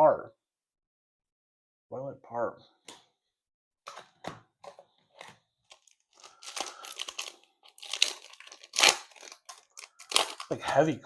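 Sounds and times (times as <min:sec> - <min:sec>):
foil wrapper tearing and crinkling: 0:05.7 - 0:10.8.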